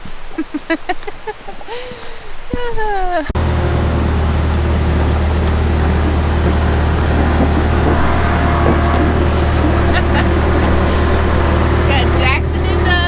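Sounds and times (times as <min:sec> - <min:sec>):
loader engine droning: 0:03.3 - 0:13.0.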